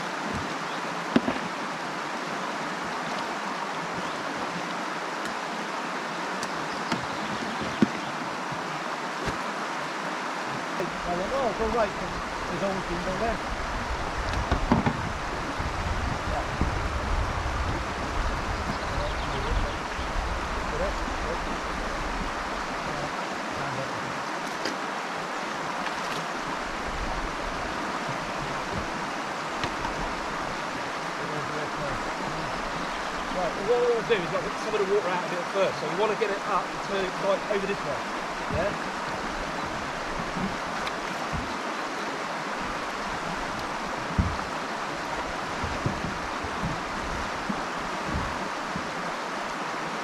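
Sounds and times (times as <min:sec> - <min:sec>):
river water rushing: 0:00.0 - 0:50.0
dull low thumps: 0:13.3 - 0:22.5, 0:26.4 - 0:30.9, 0:38.2 - 0:41.6, 0:42.6 - 0:49.0.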